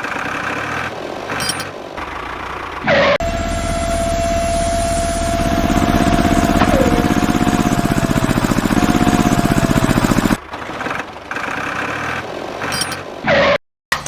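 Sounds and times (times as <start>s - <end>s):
toy tractor engine running: 1.6s - 12.2s.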